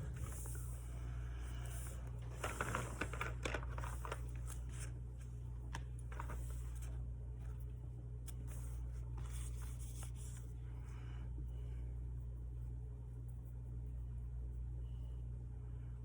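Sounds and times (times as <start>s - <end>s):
paper rustling and crinkling: 0.0s - 0.8s, 1.6s - 7.6s, 8.3s - 10.5s
low electrical hum: 0.0s - 16.0s.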